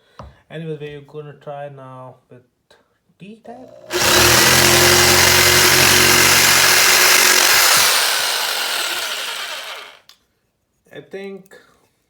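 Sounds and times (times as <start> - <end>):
jigsaw cutting wood: 3.9 - 10.1.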